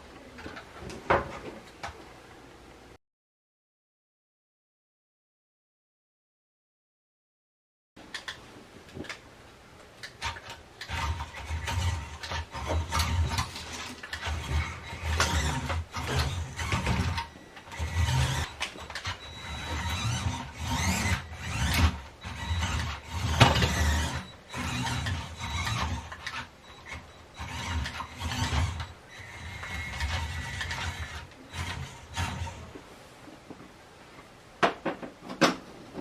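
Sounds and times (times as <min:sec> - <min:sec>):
toy truck motor whirring and grinding: 0:10.2 - 0:32.7.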